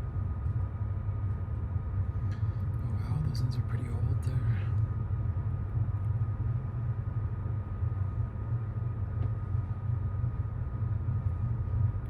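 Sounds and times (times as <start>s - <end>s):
faint high hum: 0.0s - 12.0s
train carriage rumble: 0.0s - 12.0s.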